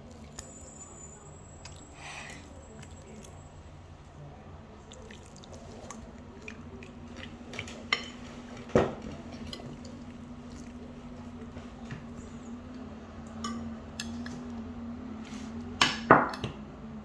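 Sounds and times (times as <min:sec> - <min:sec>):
dishes clinking and knocking: 0:07.5 - 0:09.8, 0:15.8 - 0:16.6.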